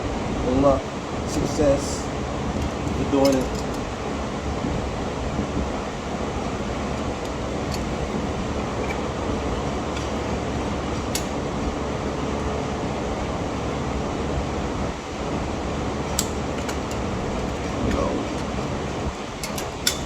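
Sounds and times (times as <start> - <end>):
steady fan-like air noise: 0.0 - 20.0
metal brake parts clicking: 2.6 - 3.9, 6.9 - 11.4, 16.0 - 20.0.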